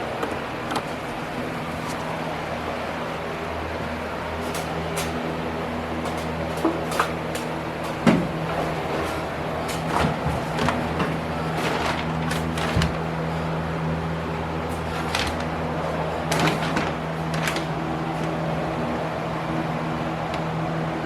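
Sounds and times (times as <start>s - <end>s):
motor hum: 0.0s - 21.0s.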